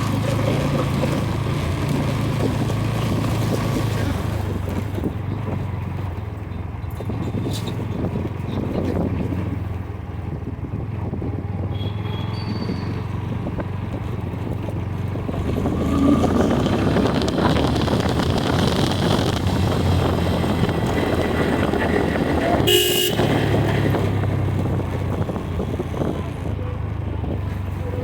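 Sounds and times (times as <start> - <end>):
wind rushing over microphone: 12.5 - 28.0
motorcycle engine running: 16.8 - 28.0.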